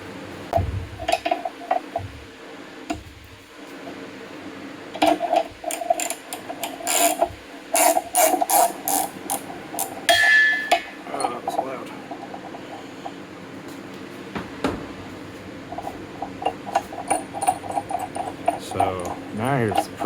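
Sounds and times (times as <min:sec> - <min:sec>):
ratchet wrench clicking: 0:05.7 - 0:09.9.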